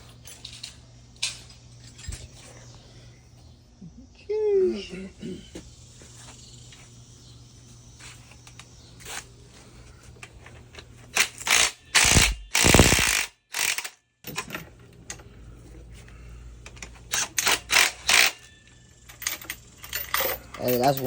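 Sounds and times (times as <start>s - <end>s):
ratchet clicking: 11.2s - 14.0s, 17.1s - 18.4s.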